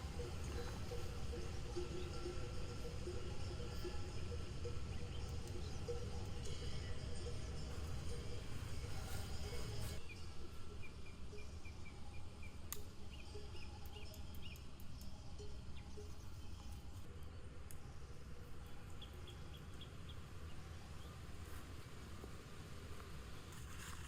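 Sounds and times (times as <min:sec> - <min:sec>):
bird chirping: 0:00.0 - 0:17.0, 0:18.5 - 0:21.3
low outdoor rumble: 0:00.0 - 0:24.0.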